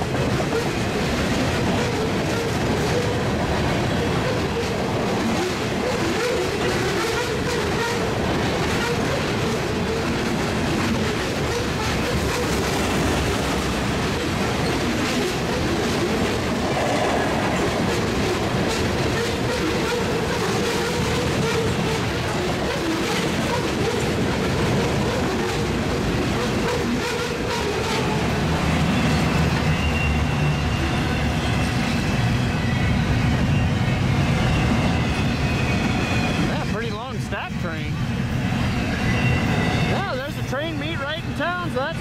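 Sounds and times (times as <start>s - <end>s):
wheels clicking over rail joints: 0.0s - 30.0s
steel wheels rumbling on rail: 0.0s - 42.0s.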